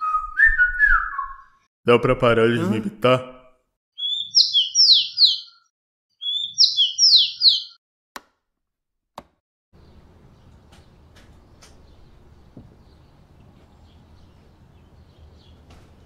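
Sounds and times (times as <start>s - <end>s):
bird chirping: 4.0s - 7.8s, 9.8s - 16.0s.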